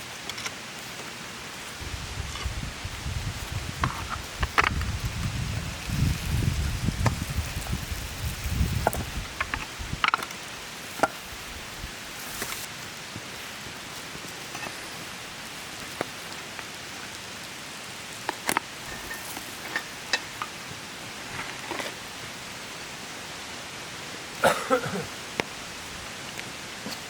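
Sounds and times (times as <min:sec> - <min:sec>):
light rain hiss: 0:00.0 - 0:27.0.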